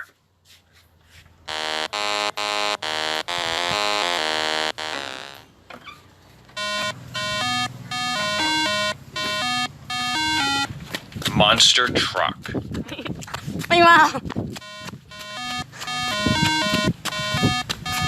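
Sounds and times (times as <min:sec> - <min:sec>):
beeping electronic melody: 0:01.5 - 0:05.4, 0:06.6 - 0:10.7, 0:14.6 - 0:18.0
electronic horn blasts: 0:01.5 - 0:05.4, 0:06.6 - 0:10.7, 0:14.6 - 0:18.0.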